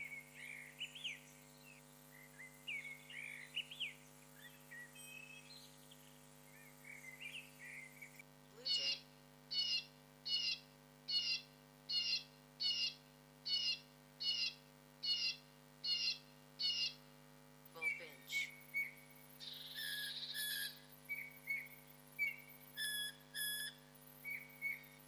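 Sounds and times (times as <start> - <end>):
bird short calls: 6.9 - 17.0
bird whistled notes: 17.8 - 25.0.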